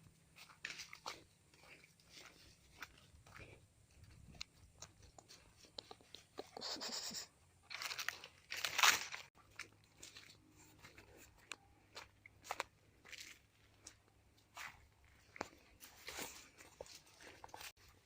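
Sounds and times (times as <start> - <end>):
crunching: 7.7 - 18.0.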